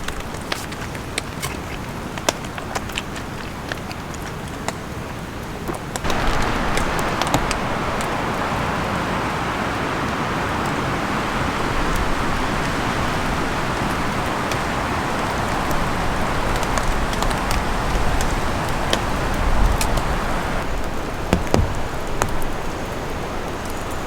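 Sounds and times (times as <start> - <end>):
steady rain: 0.0 - 24.0
wind buffeting microphone: 6.0 - 24.0.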